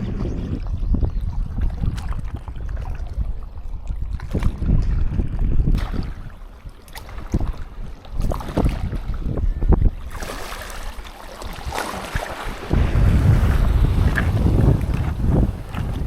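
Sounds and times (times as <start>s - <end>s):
wind buffeting microphone: 0.0s - 16.0s
surf washing on sandy beach: 10.2s - 16.0s.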